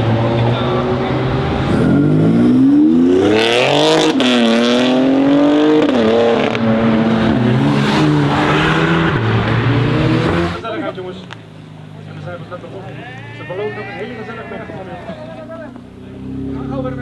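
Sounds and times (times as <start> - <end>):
car engine accelerating hard: 0.0 - 13.1, 14.0 - 17.0.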